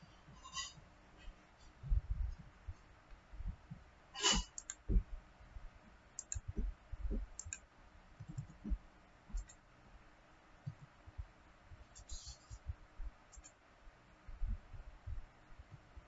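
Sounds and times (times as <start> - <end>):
soft low thuds: 1.2 - 4.0, 4.8 - 7.5, 8.2 - 9.5, 10.6 - 13.3, 14.2 - 16.0
computer mouse clicking: 4.2 - 4.9, 6.2 - 7.6, 8.2 - 9.6, 13.3 - 13.6.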